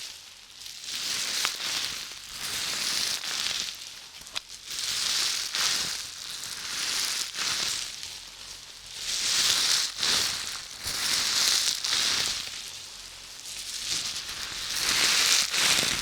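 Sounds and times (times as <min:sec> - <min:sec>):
scratching and rustling: 0:13.8 - 0:16.0.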